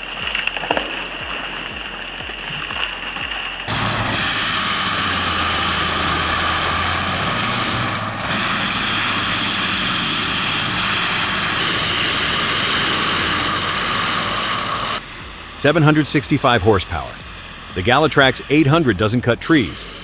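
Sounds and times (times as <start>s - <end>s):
loud engine running: 0.0s - 20.0s.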